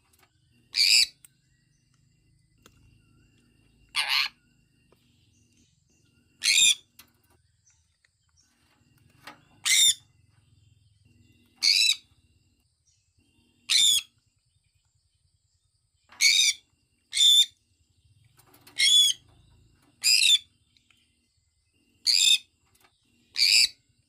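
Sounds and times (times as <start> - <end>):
parrot calling loudly: 3.9 - 4.4.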